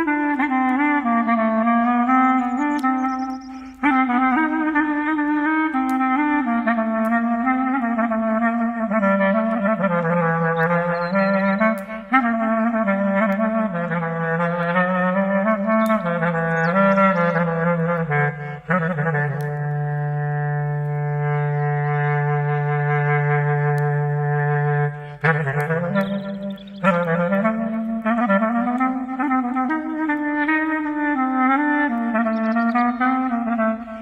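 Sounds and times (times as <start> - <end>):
slow clarinet melody: 0.0 - 34.0.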